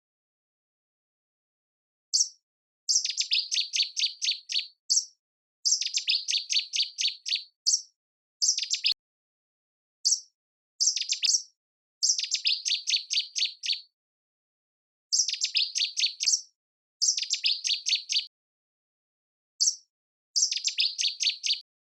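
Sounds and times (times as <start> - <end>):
songbird chirping: 2.1 - 9.0, 10.0 - 13.9, 15.1 - 18.3, 19.6 - 21.7.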